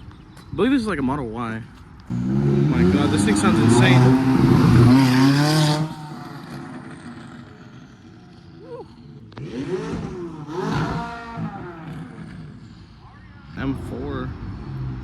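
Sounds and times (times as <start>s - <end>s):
car engine revving: 2.1s - 8.6s, 9.2s - 12.9s.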